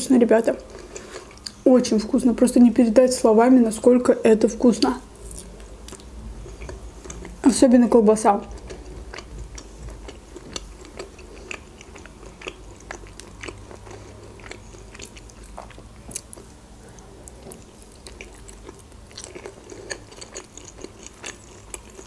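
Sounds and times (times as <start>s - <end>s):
wet chewing mouth clicks: 8.4s - 22.0s.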